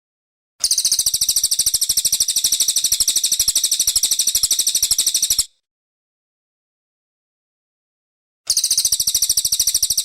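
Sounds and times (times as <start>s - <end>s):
songbird high-pitched trill: 0.6s - 5.5s, 8.5s - 10.0s.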